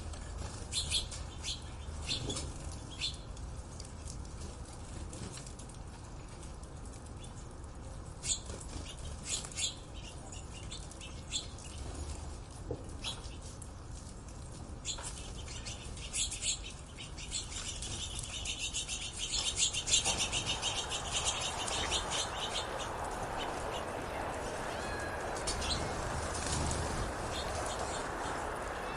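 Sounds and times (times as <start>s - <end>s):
birds chirping and twittering: 0.5s - 3.3s, 8.2s - 12.1s, 14.8s - 28.9s.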